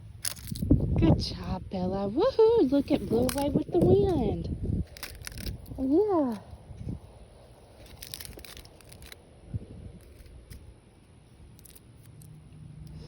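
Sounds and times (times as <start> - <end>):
dry leaves crackling: 0.0 - 0.7, 2.4 - 9.4, 11.3 - 12.4.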